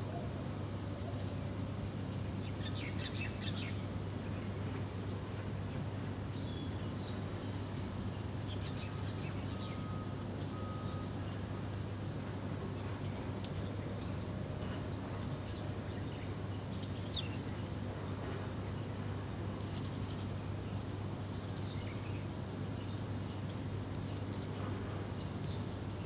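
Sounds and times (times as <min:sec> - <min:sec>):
small birds chirping: 0:15.4 - 0:17.8.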